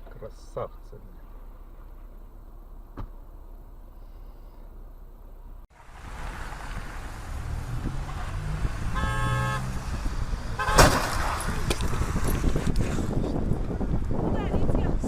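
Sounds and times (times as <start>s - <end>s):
car road noise: 0.0s - 15.0s
car horn: 7.7s - 11.4s
loud collision bang: 10.6s - 11.6s.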